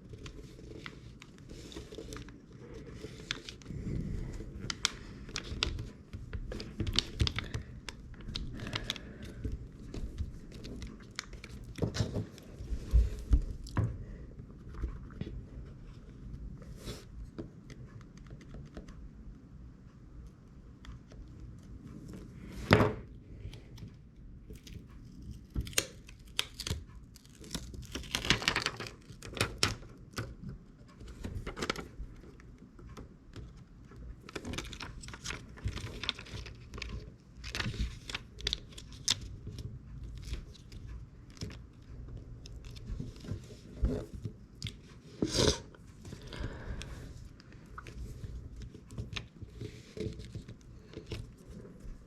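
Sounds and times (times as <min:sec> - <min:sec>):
small clicks and scrapes: 0:23.4 - 0:52.0.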